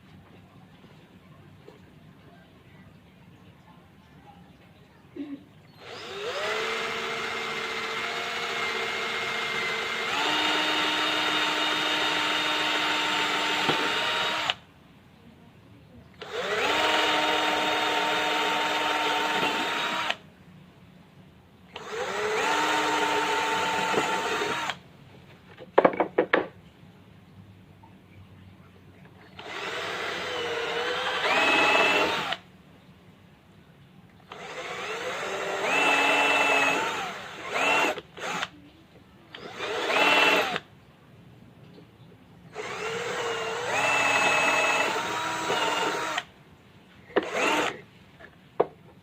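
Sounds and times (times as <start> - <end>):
electric drill spinning: 5.8 - 14.6, 16.2 - 20.2, 21.8 - 24.8, 29.4 - 32.4, 34.3 - 38.5, 39.4 - 40.6, 42.6 - 46.3, 47.2 - 47.8.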